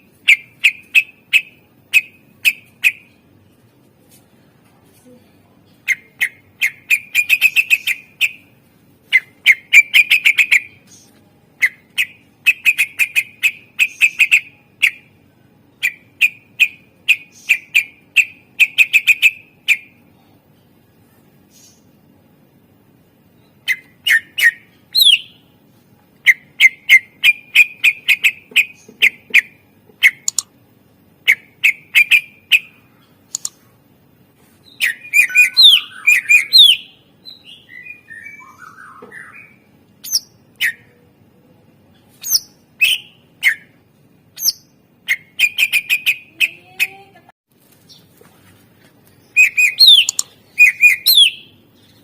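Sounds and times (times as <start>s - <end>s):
bird singing sharp chirps: 34.7s - 40.9s, 49.3s - 51.5s.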